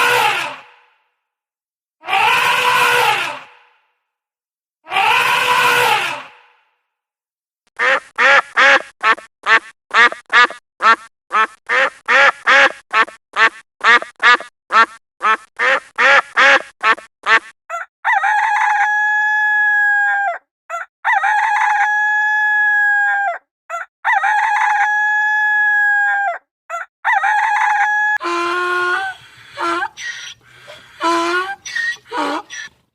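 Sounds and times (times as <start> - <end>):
fowl calling: 28.2 - 32.8.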